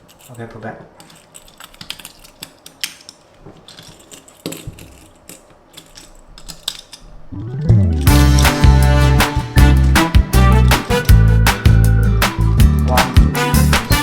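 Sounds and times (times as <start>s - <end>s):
toy car and packaging clicks: 1.0s - 7.1s
music: 7.4s - 14.0s.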